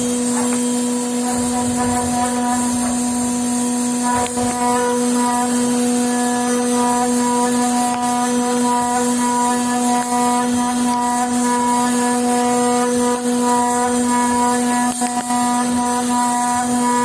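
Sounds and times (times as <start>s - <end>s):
machine electrical hum: 0.0s - 17.0s.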